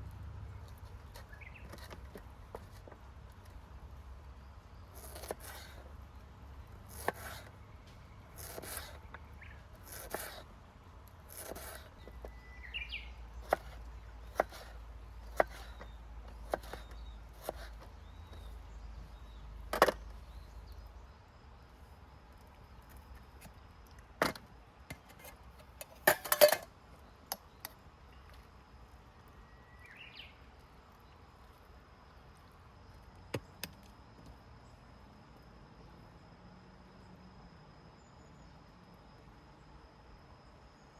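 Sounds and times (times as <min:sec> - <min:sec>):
bird chirps: 0:01.0 - 0:02.1, 0:06.6 - 0:10.0, 0:11.9 - 0:21.2, 0:29.2 - 0:31.2.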